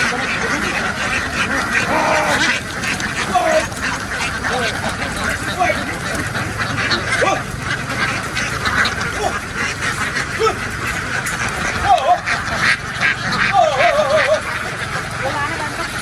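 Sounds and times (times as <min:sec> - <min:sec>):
flock of ducks quacking: 0:00.0 - 0:16.0.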